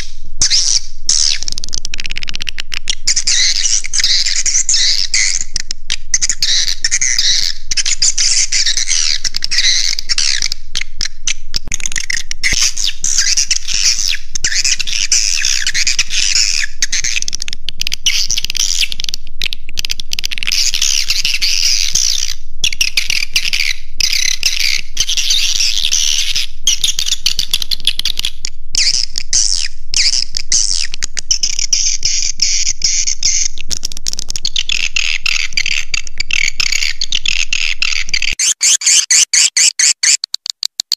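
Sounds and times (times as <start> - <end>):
swiftlet calls twittering: 38.0 - 40.9.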